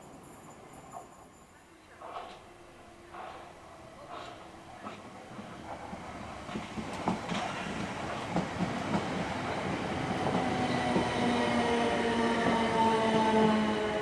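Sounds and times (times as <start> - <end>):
train wheels clicking over rail joints: 3.1 - 13.3.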